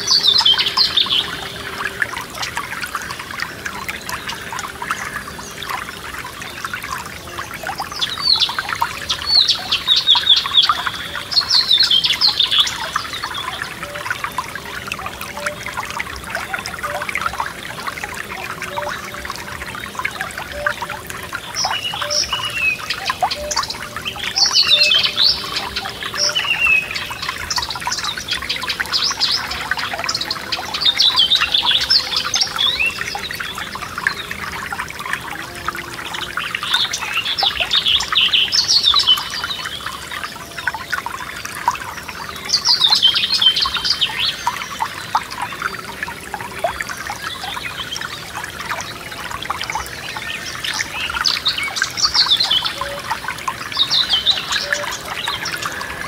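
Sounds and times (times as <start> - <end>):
forest stream trickling: 0.0 - 56.0
songbird chirping and trilling: 20.0 - 34.8, 49.7 - 56.0.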